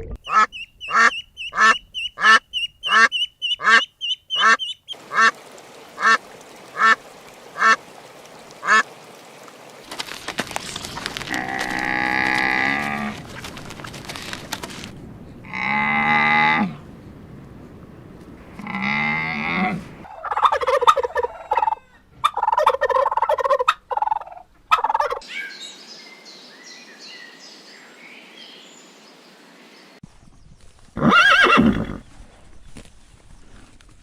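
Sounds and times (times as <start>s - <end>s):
cow mooing: 11.3s - 13.2s, 15.4s - 16.8s, 18.5s - 20.0s
turkey gobbling: 20.0s - 25.2s
horse whinnying: 31.0s - 32.0s.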